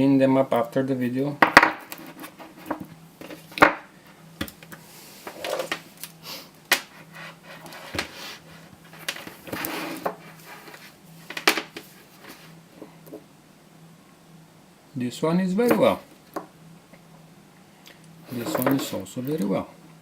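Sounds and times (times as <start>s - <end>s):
rustling: 7.0s - 12.6s.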